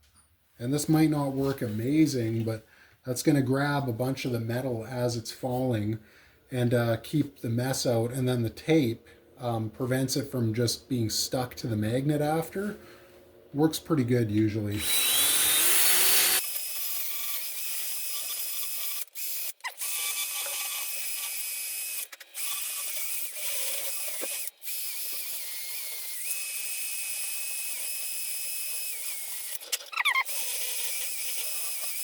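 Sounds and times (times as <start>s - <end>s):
drill burr grinding metal: 14.7s - 32.0s.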